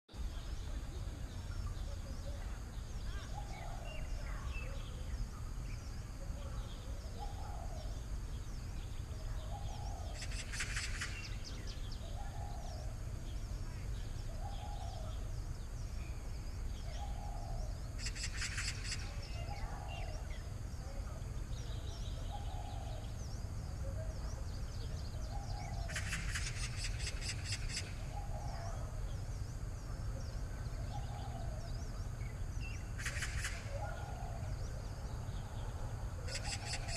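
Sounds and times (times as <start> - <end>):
bird low call: 0.2 - 36.9
bird rapid clicking trill: 10.2 - 11.5, 18.0 - 19.4, 25.9 - 28.0, 33.0 - 33.7, 36.3 - 36.9.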